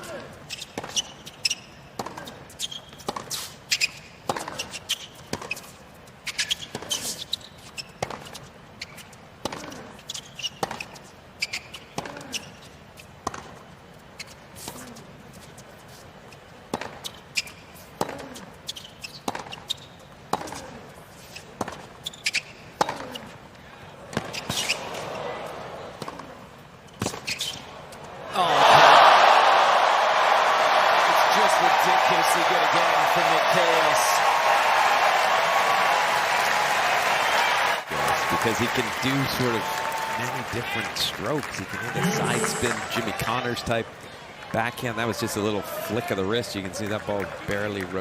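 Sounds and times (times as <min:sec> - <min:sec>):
tennis ball bouncing: 0:02.0 - 0:03.4, 0:04.2 - 0:05.6, 0:13.2 - 0:13.6, 0:16.7 - 0:20.8, 0:21.6 - 0:23.4, 0:26.0 - 0:26.3
racket hitting tennis ball: 0:04.2 - 0:05.5, 0:19.2 - 0:19.7, 0:20.3 - 0:20.7.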